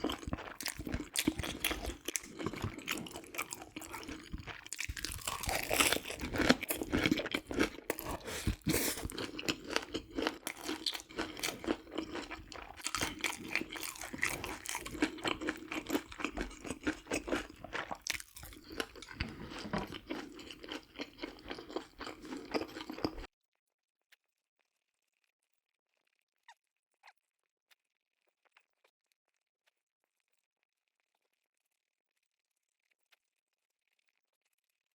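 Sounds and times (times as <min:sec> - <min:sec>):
person chewing crunchy food: 0:00.0 - 0:23.3.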